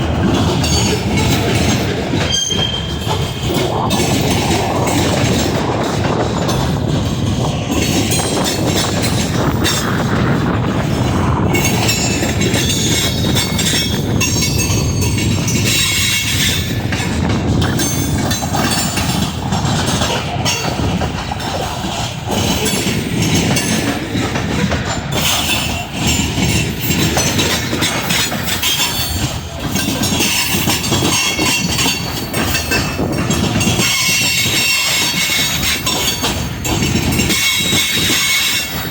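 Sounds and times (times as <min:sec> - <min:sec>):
train wheels on rails: 0:00.0 - 0:38.9.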